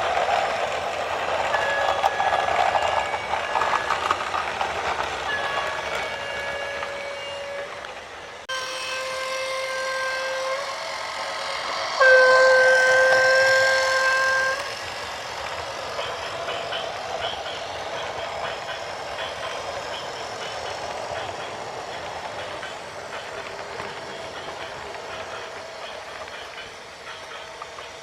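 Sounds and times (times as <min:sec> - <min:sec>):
vehicle horn blasts: 0:08.5 - 0:10.7, 0:12.0 - 0:14.7.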